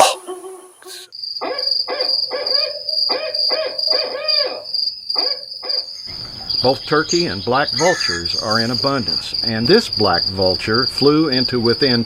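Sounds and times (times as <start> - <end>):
owl hooting: 0.0 - 9.2
crickets trilling: 0.0 - 12.0.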